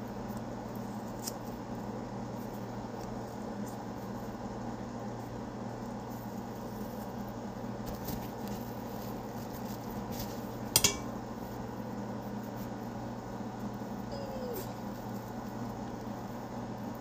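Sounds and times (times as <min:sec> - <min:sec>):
low room hum: 0:00.0 - 0:17.0
kitchenware clinking: 0:10.8 - 0:11.2.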